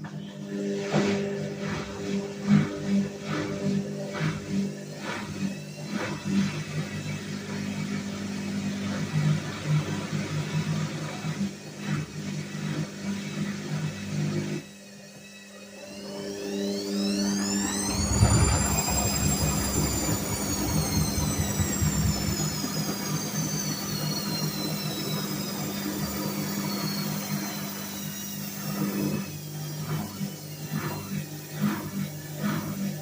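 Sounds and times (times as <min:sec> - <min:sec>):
washing machine motor whine: 0:00.0 - 0:33.0
steady hum: 0:17.4 - 0:23.3
uneven knocks and pulses: 0:17.5 - 0:23.8
drum rumble: 0:17.8 - 0:22.8.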